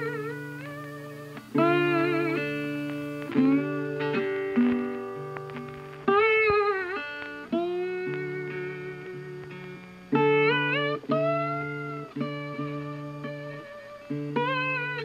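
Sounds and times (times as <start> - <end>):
guitar music with held notes: 0.0 - 15.0.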